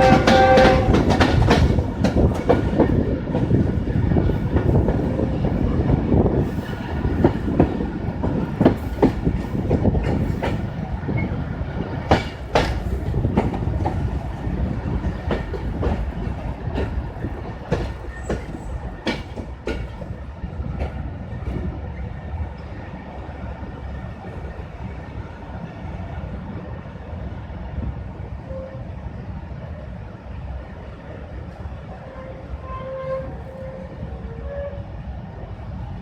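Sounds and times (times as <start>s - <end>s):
train rumble: 0.0s - 36.0s.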